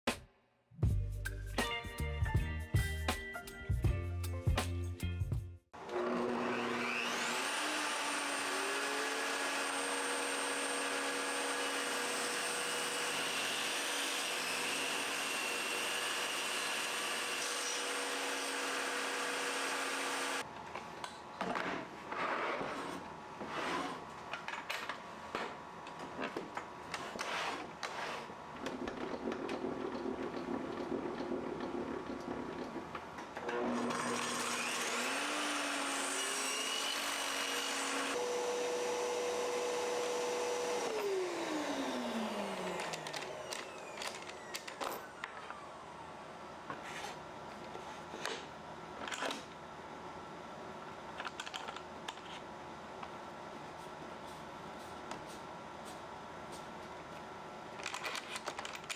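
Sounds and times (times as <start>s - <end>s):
power tool whining: 5.8s - 20.4s, 33.4s - 45.8s
uneven working strokes: 33.4s - 44.5s.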